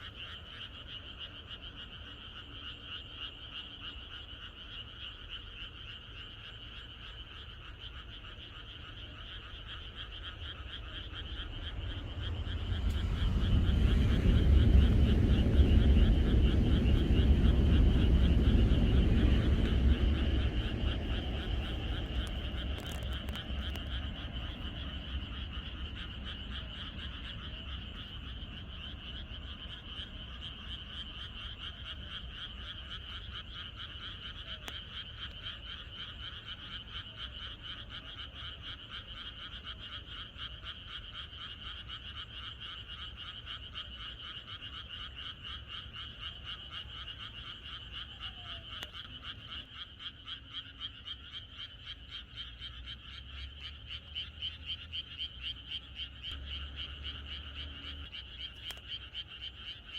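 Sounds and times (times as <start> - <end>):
chorus of frogs croaking: 0.0 - 59.9
low rumble: 10.4 - 33.2.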